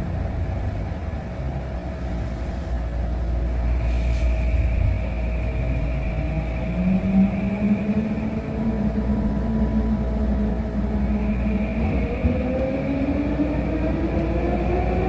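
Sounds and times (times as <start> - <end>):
train car rumbling: 0.0 - 15.0.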